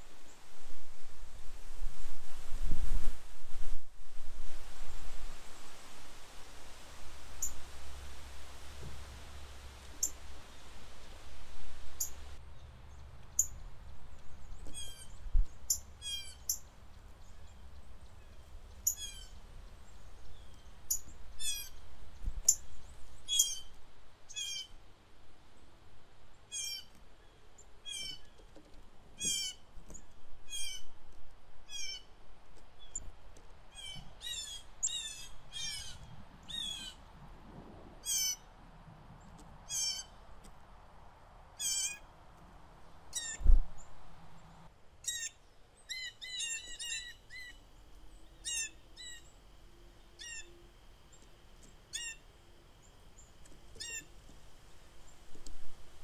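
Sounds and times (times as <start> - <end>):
wind gusts rumbling: 0.0 - 14.6, 35.9 - 39.6
songbirds calling: 7.3 - 11.0, 11.6 - 31.0, 31.6 - 33.1, 33.7 - 37.2, 38.0 - 38.5, 39.1 - 40.5, 41.6 - 55.7.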